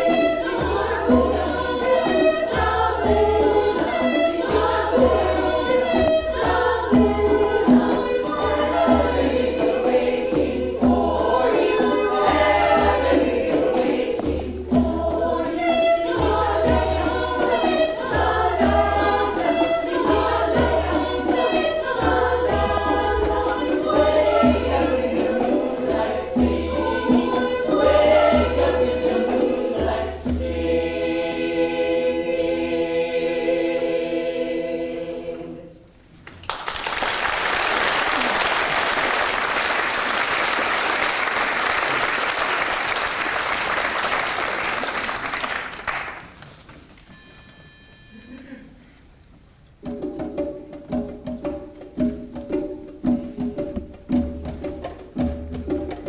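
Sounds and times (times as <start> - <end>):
choir singing in harmony: 0.0 - 36.1.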